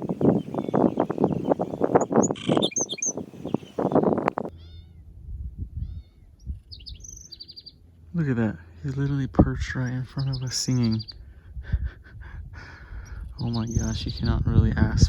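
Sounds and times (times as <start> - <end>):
high bird chirps: 0.0 - 5.1, 5.8 - 7.8, 9.0 - 11.2, 13.0 - 14.4.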